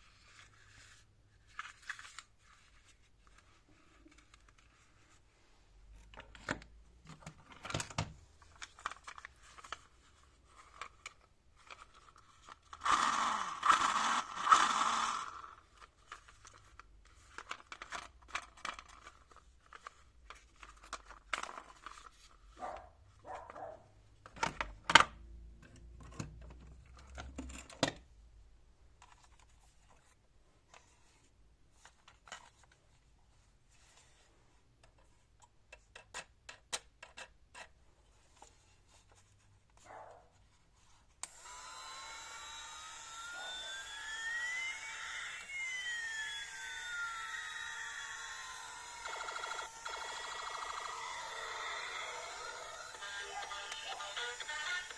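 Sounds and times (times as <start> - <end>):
small clicks and knocks: 34.8 - 37.8.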